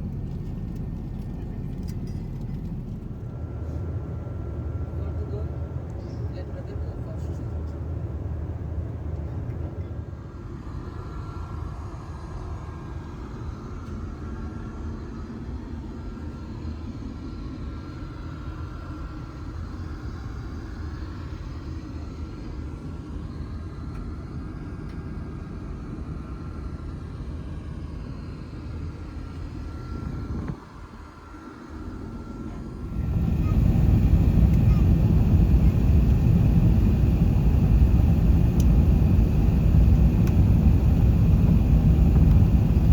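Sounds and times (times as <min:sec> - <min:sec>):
airliner cabin engine rumble: 0:00.0 - 0:10.3, 0:28.2 - 0:42.9.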